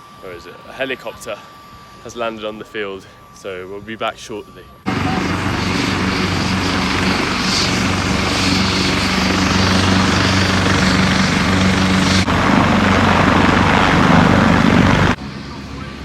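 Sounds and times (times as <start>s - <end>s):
helicopter rotor chopping: 0.0s - 16.0s
low engine hum: 4.9s - 16.0s.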